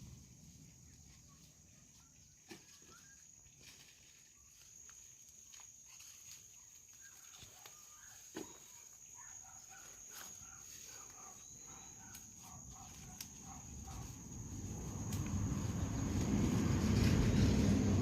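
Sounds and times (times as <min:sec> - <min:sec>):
high insect whine: 0:07.7 - 0:18.0.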